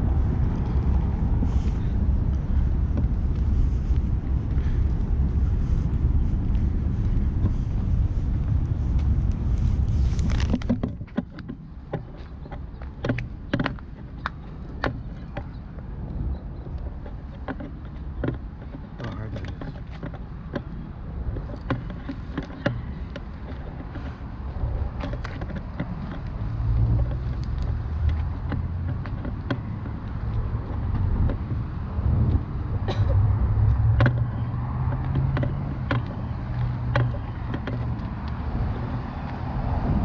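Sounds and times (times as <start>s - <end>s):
vehicle engine low rumble: 0.0s - 40.0s
irregular clicks and knocks: 10.2s - 38.4s.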